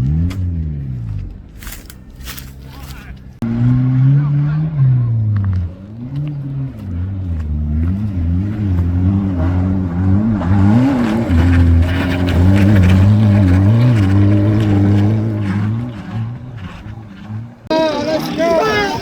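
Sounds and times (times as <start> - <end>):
race car engine revving: 0.0 - 19.0.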